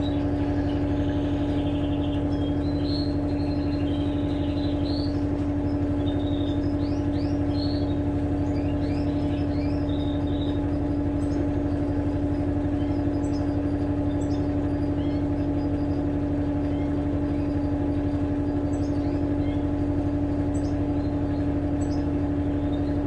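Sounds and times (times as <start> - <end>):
birds chirping faintly: 0.0 - 23.0
washing machine motor hum: 0.0 - 23.0.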